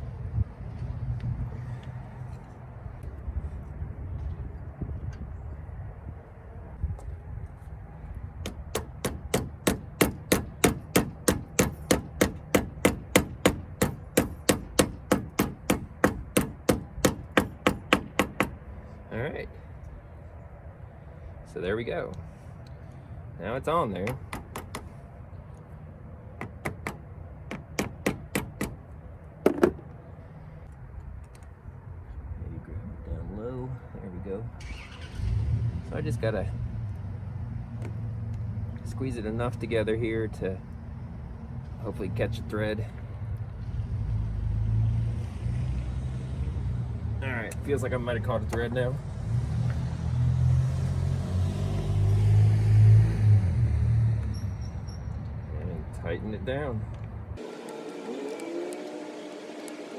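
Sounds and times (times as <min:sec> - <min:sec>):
vehicle engine droning: 0:41.3 - 0:55.1, 0:57.4 - 0:59.9.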